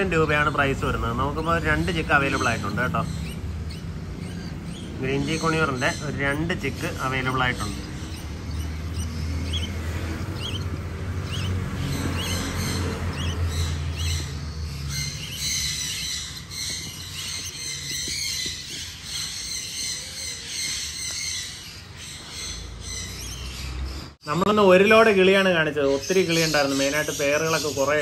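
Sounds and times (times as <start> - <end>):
rapid high-pitched bird chattering: 0.0 - 28.0
short rising bird chirps: 6.7 - 24.2.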